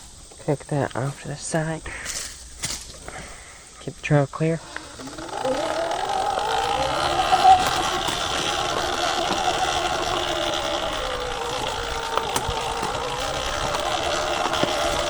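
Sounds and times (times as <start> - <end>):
electric dirt bike motor whining: 4.6 - 15.0.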